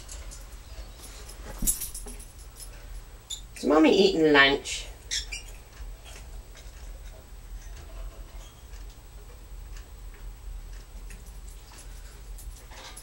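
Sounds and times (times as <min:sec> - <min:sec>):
low steady hum: 0:00.0 - 0:13.0
light clicks and ticks: 0:05.3 - 0:13.0.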